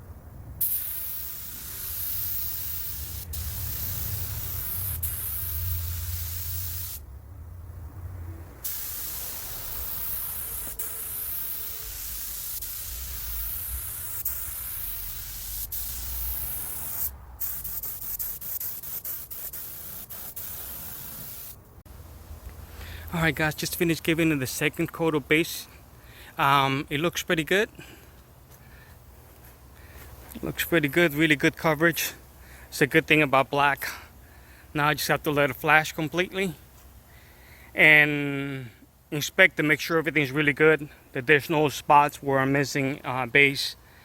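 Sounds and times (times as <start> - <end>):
air spray gun hissing: 0.6 - 7.0, 8.6 - 21.6.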